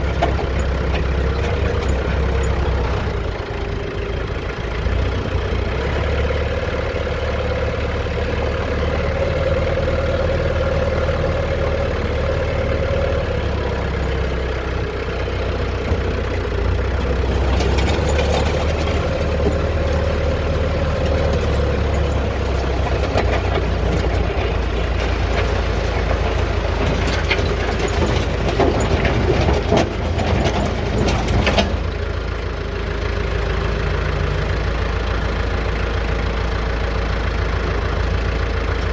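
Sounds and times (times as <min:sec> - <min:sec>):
engine humming: 0:00.0 - 0:38.9
crackling and rattling: 0:16.8 - 0:32.0.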